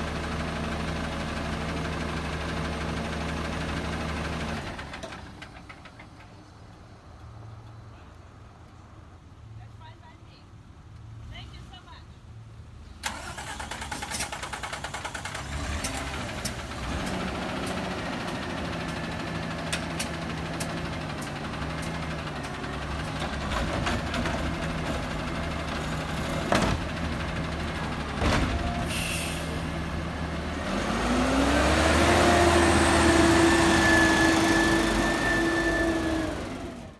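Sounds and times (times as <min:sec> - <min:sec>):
garbage truck engine running: 0:13.3 - 0:36.9.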